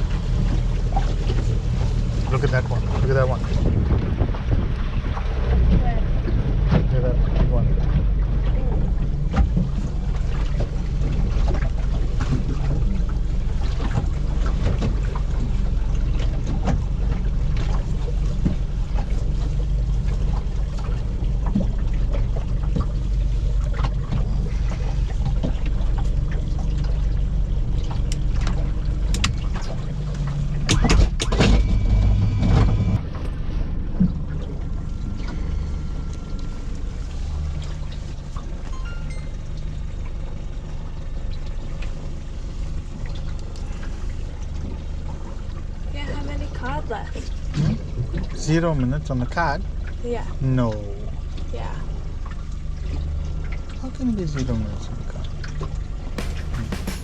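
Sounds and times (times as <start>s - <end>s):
boat engine running: 0.0s - 57.0s
water and hull noise: 0.0s - 57.0s
sharp knocks: 56.2s - 57.0s.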